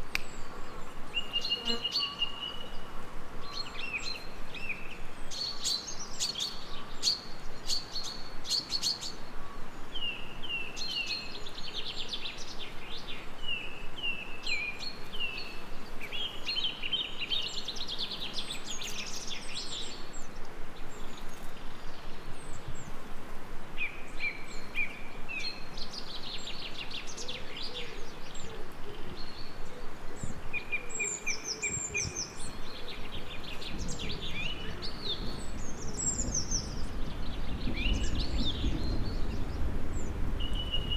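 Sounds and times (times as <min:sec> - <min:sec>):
gentle rain hiss: 0:00.0 - 0:40.9
songbirds chirping and singing: 0:24.2 - 0:40.9.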